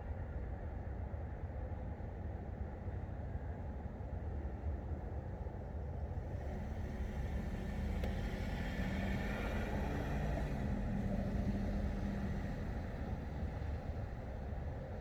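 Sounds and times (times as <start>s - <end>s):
vehicle engine hum: 6.2s - 15.0s.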